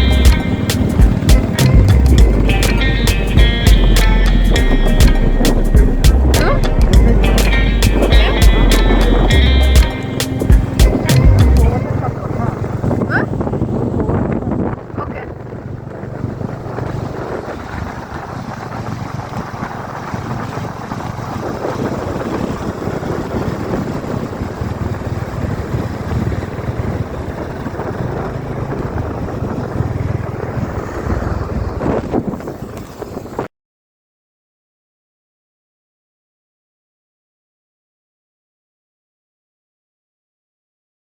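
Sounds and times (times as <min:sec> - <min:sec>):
motorcycle engine running: 0:00.0 - 0:32.6
wind buffeting microphone: 0:00.0 - 0:33.5.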